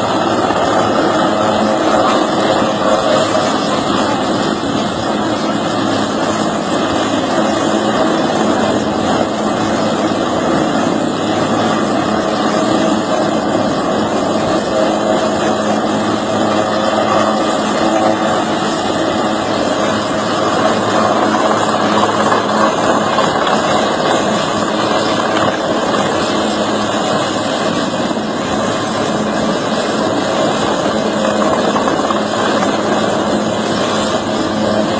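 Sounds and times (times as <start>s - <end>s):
loud engine running: 0.0s - 34.9s.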